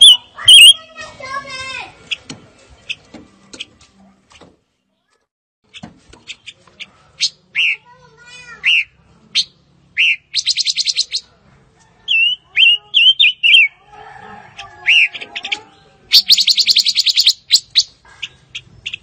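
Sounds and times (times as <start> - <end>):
bird slurred whistles: 0.0 - 0.7, 8.6 - 11.2
bird upslurred calls: 0.0 - 0.7, 8.6 - 11.3, 14.8 - 19.0.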